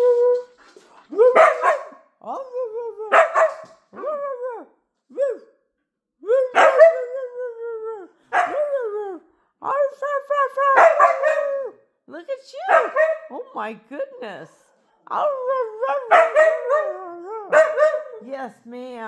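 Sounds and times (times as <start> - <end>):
dog howling: 6.3 - 9.8, 10.6 - 11.8, 15.2 - 18.2.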